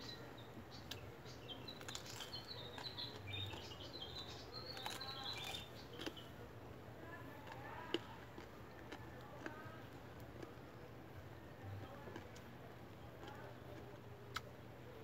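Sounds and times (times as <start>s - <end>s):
small birds chirping: 0.0s - 15.0s
crunching bites of raw fruit: 1.7s - 6.4s.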